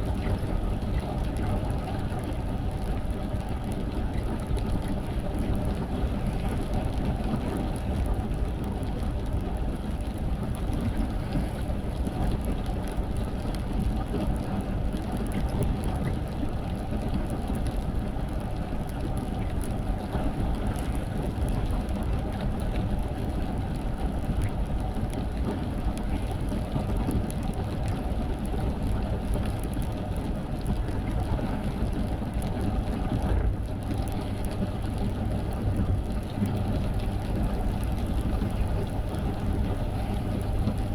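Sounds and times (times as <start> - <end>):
car driving in rain: 23.7 - 40.9.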